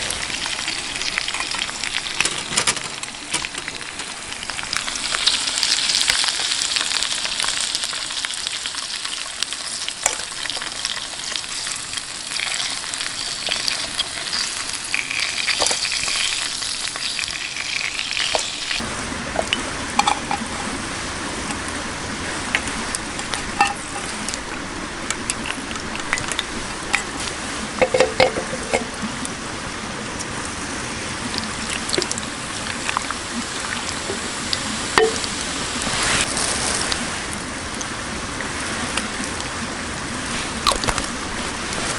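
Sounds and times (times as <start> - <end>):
food sizzling in a hot pan: 0.0 - 18.8.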